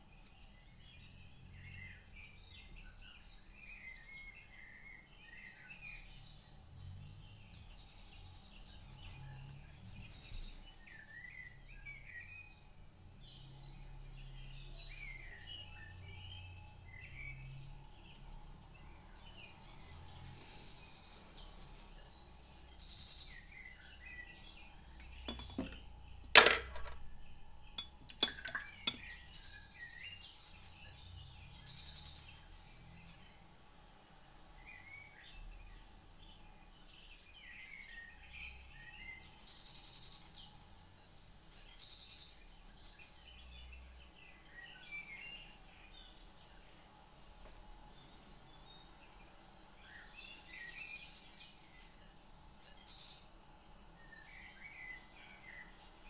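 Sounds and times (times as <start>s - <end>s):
small birds chirping: 0.0s - 26.3s, 27.0s - 56.0s
sharp clink: 27.8s - 29.2s.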